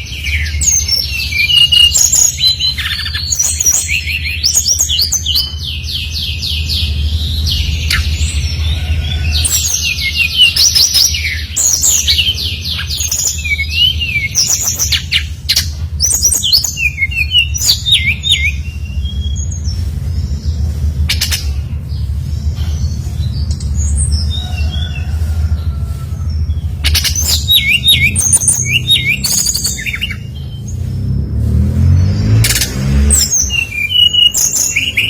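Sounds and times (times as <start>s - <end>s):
steady low hum: 0.0s - 33.9s
flycatcher whistled song: 27.0s - 30.2s.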